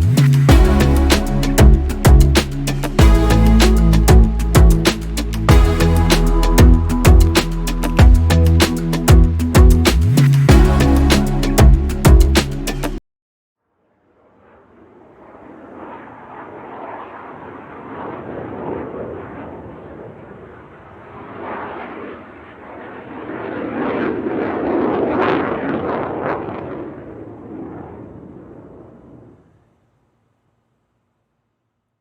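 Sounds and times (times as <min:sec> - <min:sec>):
rolling thunder: 0:14.6 - 0:21.9, 0:23.0 - 0:29.6.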